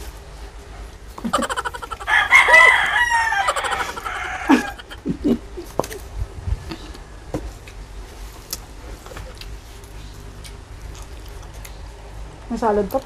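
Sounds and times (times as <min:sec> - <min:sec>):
rooster crowing: 0:01.3 - 0:05.1.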